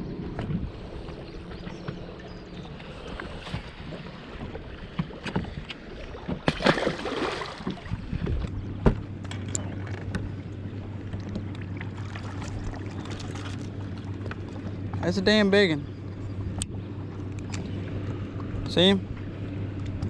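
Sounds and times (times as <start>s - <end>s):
steady low hum: 0.0s - 20.0s
knocks and thumps on boat: 0.2s - 10.4s.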